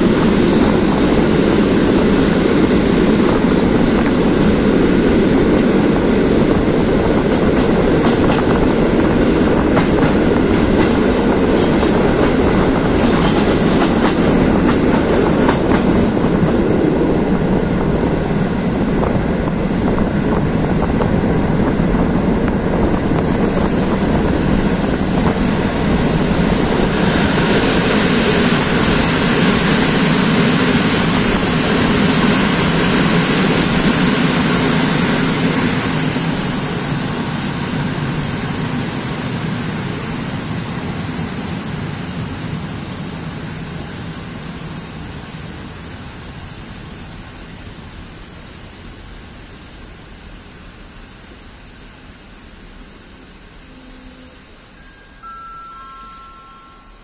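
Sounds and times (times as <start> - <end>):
rushing air: 0.0 - 40.3
train wheels on rails: 0.0 - 57.0.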